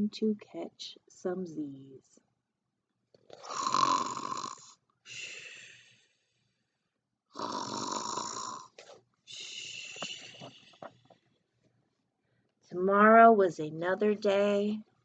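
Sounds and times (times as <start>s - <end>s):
person imitating snoring: 3.4s - 5.8s, 7.3s - 10.6s.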